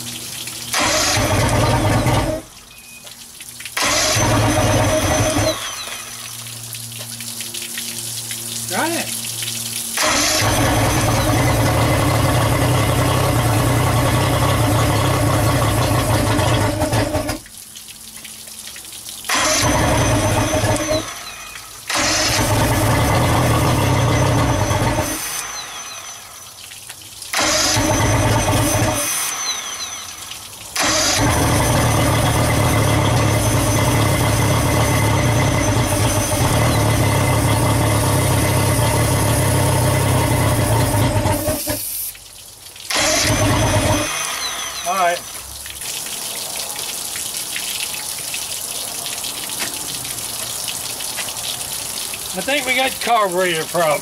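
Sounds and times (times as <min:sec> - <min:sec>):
outboard motor cranking: 0:00.6 - 0:07.2, 0:09.8 - 0:17.5, 0:19.2 - 0:26.5, 0:27.3 - 0:42.0, 0:42.8 - 0:45.6.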